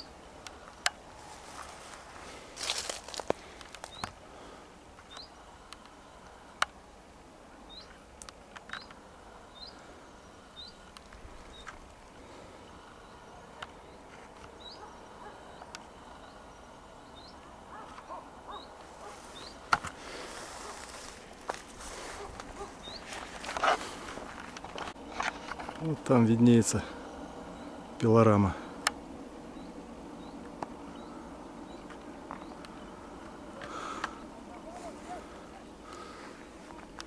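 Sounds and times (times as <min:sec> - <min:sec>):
small bird chirping: 0:05.0 - 0:05.4, 0:07.7 - 0:08.0, 0:08.7 - 0:11.8, 0:12.9 - 0:19.7, 0:22.2 - 0:23.3.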